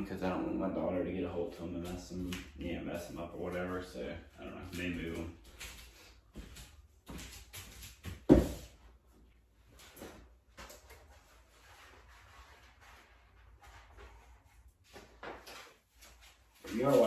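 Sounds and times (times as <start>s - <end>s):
soft rustling: 9.7s - 17.0s.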